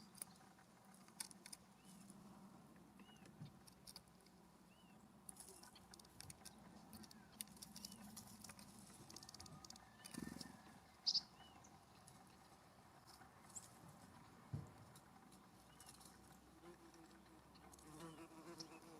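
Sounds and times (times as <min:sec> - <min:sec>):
faint birdsong chirps: 0:00.0 - 0:03.7, 0:04.3 - 0:18.9
birds tapping at seed feeder: 0:05.3 - 0:11.2.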